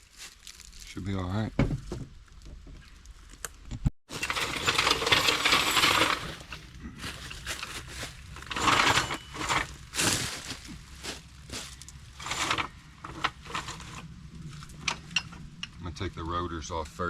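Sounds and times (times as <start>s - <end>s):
metal objects clinking and rattling: 4.1s - 10.6s, 11.6s - 15.8s.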